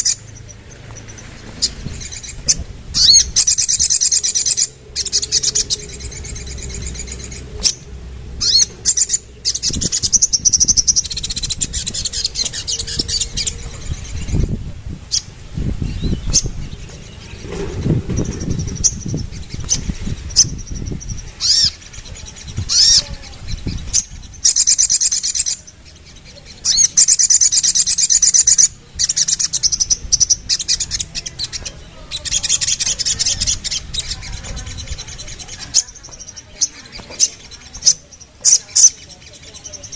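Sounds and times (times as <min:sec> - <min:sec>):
low rumbling noise: 0:00.0 - 0:24.5
bird singing high trills: 0:00.0 - 0:39.9.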